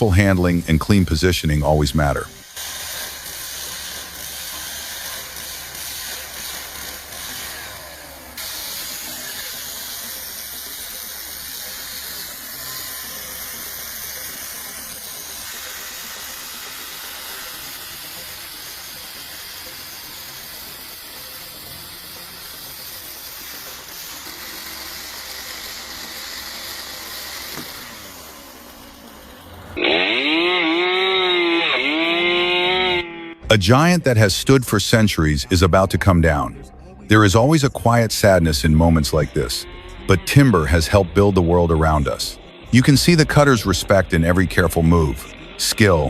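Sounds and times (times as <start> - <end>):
small engine revving: 2.5 - 33.5, 39.5 - 41.0.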